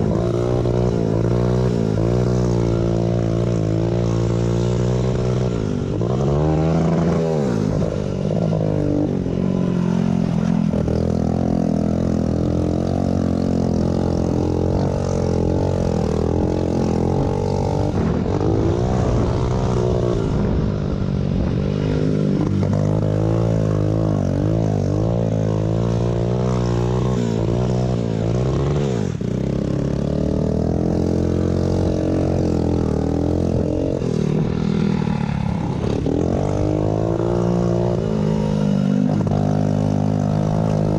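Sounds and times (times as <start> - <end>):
small motorbike engine revving: 0.0 - 40.9.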